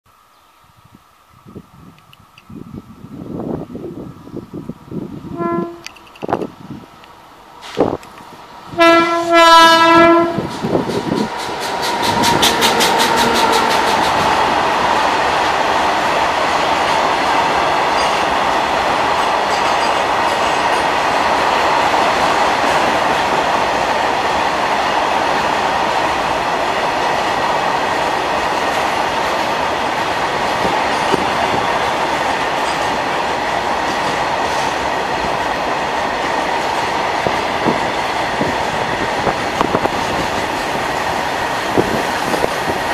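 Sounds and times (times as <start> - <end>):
electric locomotive horn: 5.2 - 6.1, 8.7 - 10.5
freight wagons rumbling past: 10.1 - 23.3
wheels clattering on rails: 10.4 - 24.2, 28.0 - 42.9.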